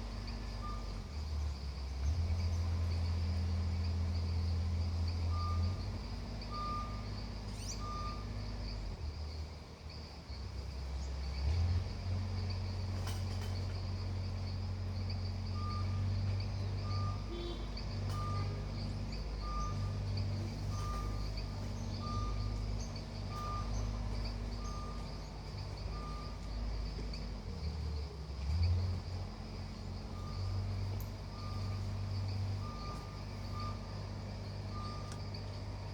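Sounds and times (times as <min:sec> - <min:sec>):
heavy vehicle engine drone: 0:00.0 - 0:35.9
reversing alarm beeping: 0:05.3 - 0:05.8, 0:06.5 - 0:08.4, 0:15.5 - 0:16.1, 0:16.8 - 0:25.2, 0:25.8 - 0:26.5, 0:30.1 - 0:35.2.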